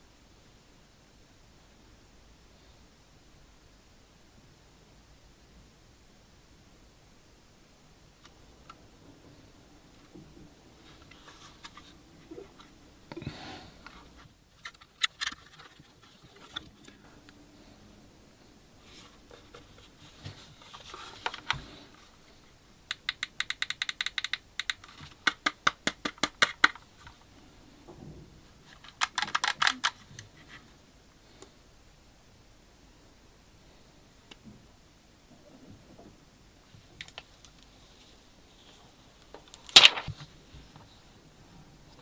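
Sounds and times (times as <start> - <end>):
rapid evenly spaced clicks: 22.9 - 24.9.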